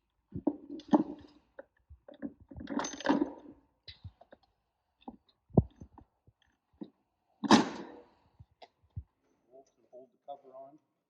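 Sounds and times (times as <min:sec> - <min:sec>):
metal parts clicking and clinking: 0:02.1 - 0:04.4.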